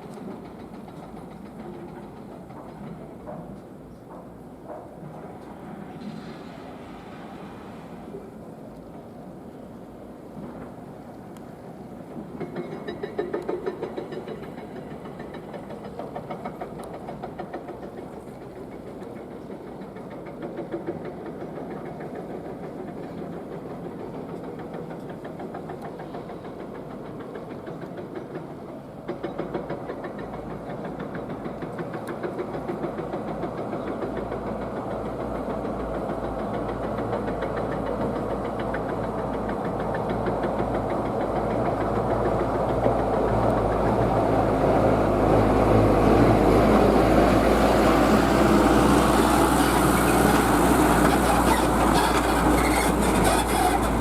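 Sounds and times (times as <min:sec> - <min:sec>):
diesel engine running: 0:40.6 - 0:54.0.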